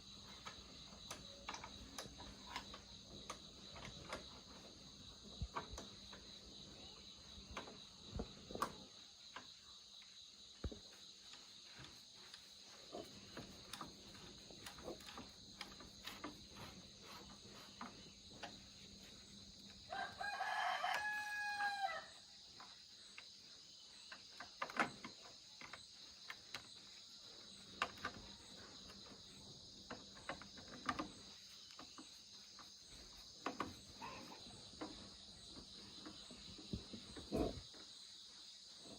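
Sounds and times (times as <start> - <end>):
rooster crowing: 19.9 - 22.2.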